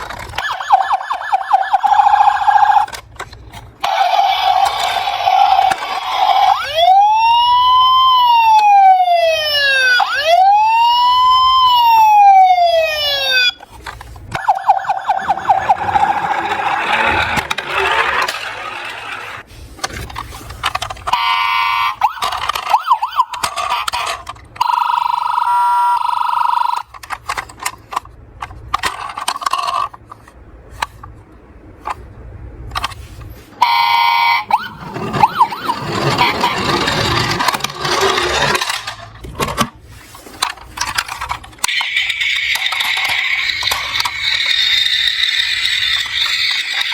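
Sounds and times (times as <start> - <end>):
emergency vehicle siren wailing: 0.4 - 3.0, 3.8 - 13.6, 14.4 - 19.4, 21.1 - 26.8, 33.6 - 38.7, 41.8 - 46.9
pulsing beeps: 14.4 - 16.7
sharp clicks and rattles: 34.9 - 39.8, 40.4 - 46.9.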